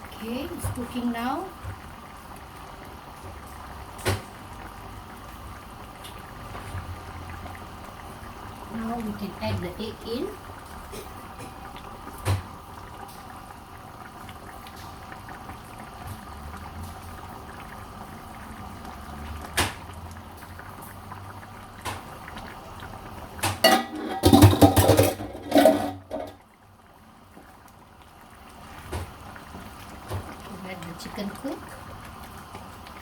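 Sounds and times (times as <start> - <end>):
curry simmering in a pot: 0.0 - 33.0
knocking and scraping in pot: 23.4 - 26.4.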